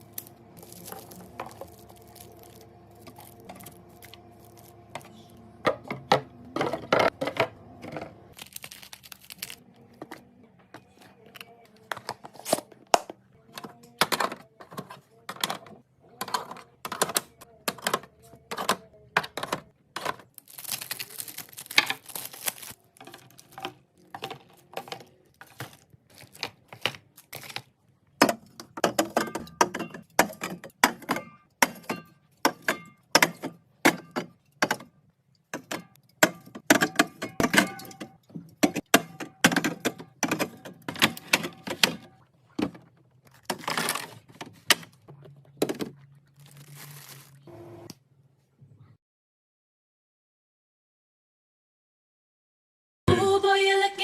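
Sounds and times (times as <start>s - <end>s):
containers and bottles clicking: 21.6s - 34.9s, 35.5s - 46.5s.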